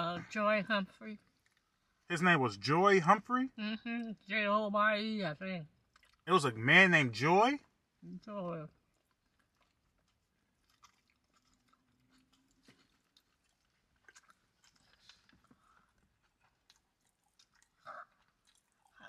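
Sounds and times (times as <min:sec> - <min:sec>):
people chewing food: 0:00.0 - 0:04.5, 0:05.7 - 0:19.0
small wet mouth clicks: 0:05.9 - 0:06.3.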